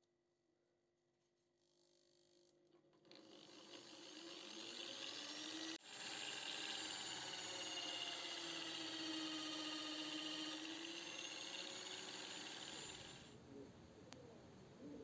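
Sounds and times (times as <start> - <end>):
small electric power tool running: 2.2 - 13.4.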